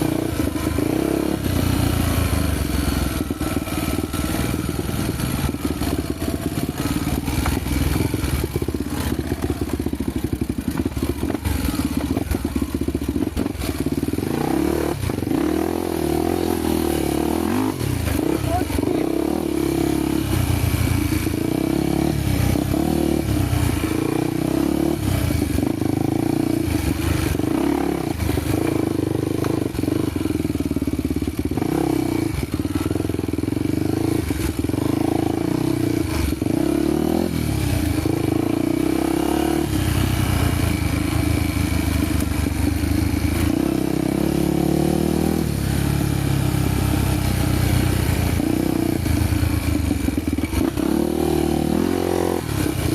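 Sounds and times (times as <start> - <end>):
motorcycle engine revving: 0.0 - 52.9
knocks and rattles from bike: 0.1 - 15.8, 20.0 - 39.0, 46.9 - 51.1.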